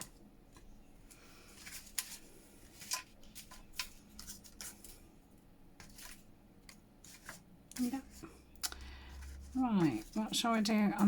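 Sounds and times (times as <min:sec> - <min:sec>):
paper rustling: 0:00.0 - 0:05.1, 0:05.8 - 0:11.0.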